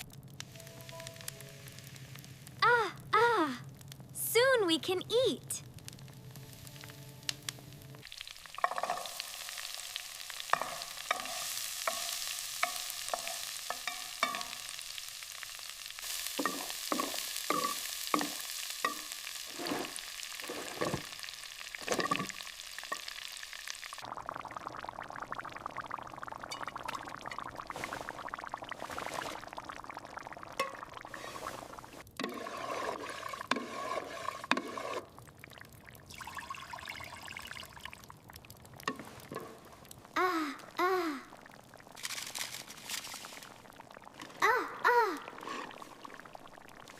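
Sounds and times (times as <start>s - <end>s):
food sizzling: 0.0s - 46.9s
crackling pot stirring: 5.6s - 40.2s, 41.3s - 46.9s
utensils tapping: 10.5s - 14.6s, 16.4s - 19.9s.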